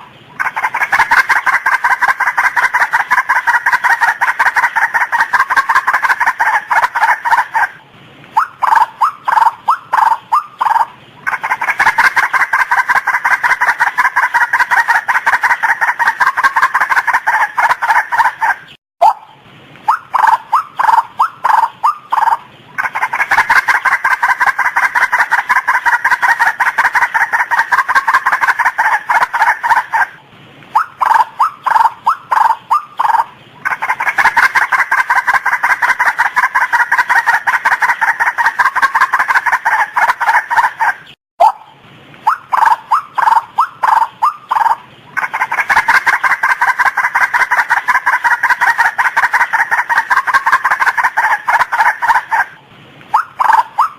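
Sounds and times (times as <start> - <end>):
waterhen calling: 0.0 - 53.9.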